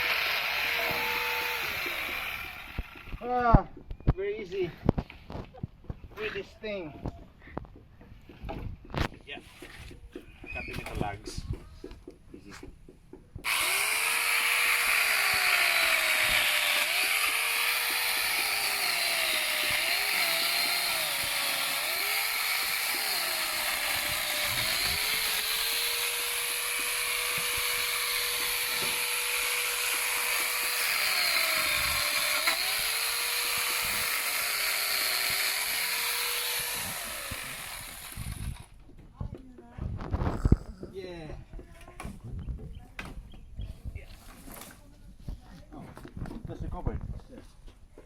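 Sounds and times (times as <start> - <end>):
chainsaw cutting through log: 0.0 - 3.2, 13.4 - 38.8.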